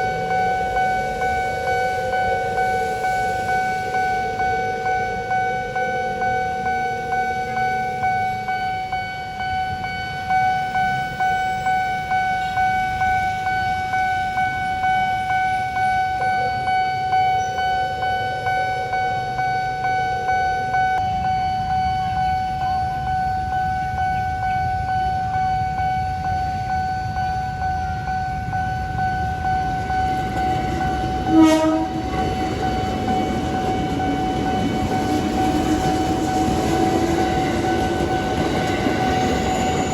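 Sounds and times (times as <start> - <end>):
level crossing warning bell: 0.0 - 39.9
train rumbling: 0.0 - 39.9
train horn blast: 30.4 - 35.9.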